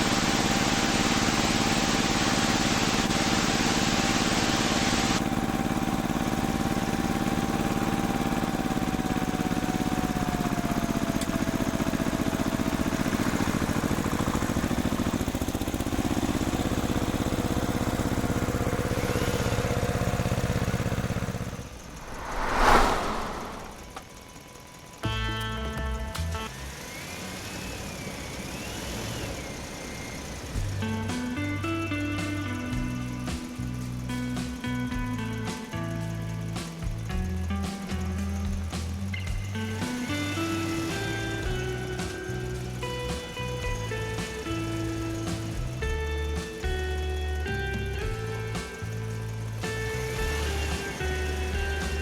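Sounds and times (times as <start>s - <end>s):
short whoosh: 21.8s - 24.2s.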